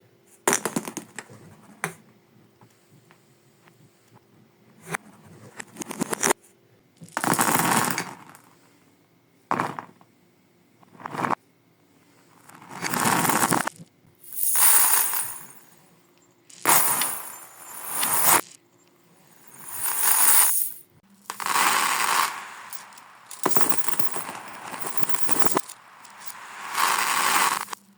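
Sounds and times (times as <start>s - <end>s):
beads and cubes rattling: 7.0s - 8.3s, 12.5s - 15.6s, 16.5s - 18.6s, 19.3s - 27.9s.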